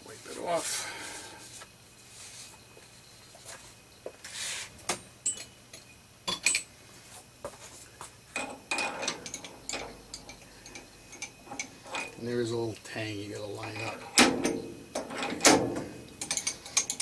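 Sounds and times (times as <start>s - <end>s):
metal tools clinking: 8.4s - 12.2s, 16.2s - 17.0s.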